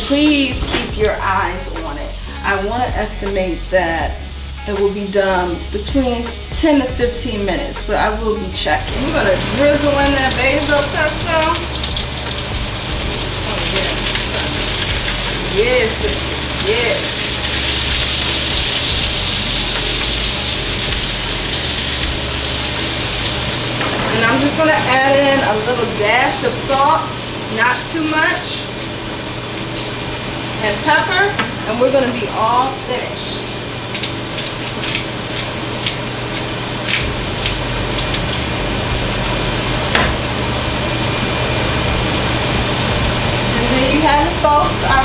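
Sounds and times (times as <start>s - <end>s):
food sizzling in a pan: 0.0s - 3.5s, 8.8s - 45.0s
low hum: 0.0s - 26.5s, 36.9s - 45.0s.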